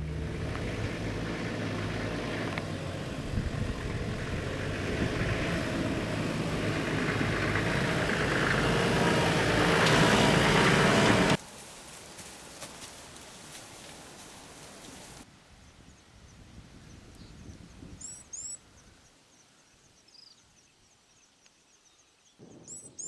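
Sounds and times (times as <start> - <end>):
vehicle engine running: 0.0 - 15.2
road noise: 0.0 - 15.3.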